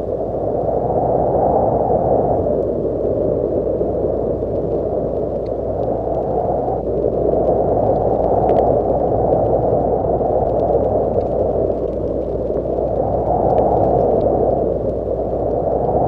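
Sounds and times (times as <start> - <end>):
muffled rushing noise: 0.0 - 16.0
faint ticks: 2.4 - 16.0.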